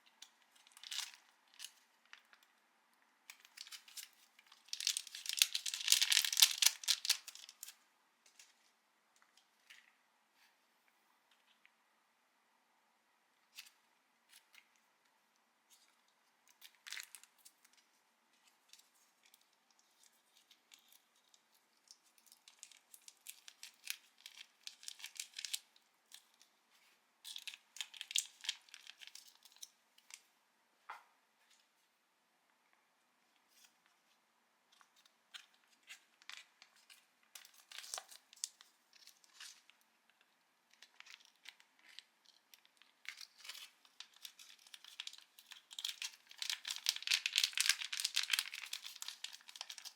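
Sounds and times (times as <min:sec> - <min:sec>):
packaging tearing and crinkling: 0:03.3 - 0:07.8, 0:27.3 - 0:29.7, 0:37.4 - 0:39.6, 0:43.0 - 0:49.9.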